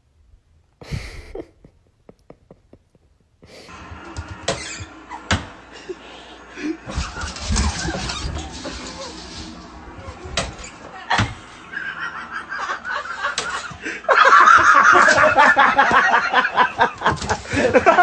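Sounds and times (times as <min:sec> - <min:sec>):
person laughing loudly: 0:00.8 - 0:03.7, 0:11.7 - 0:18.0.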